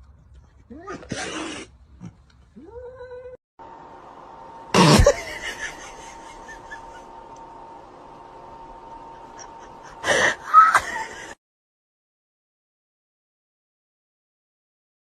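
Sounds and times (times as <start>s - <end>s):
animal cry: 0.7s - 3.4s
faint steady hum: 1.6s - 11.4s.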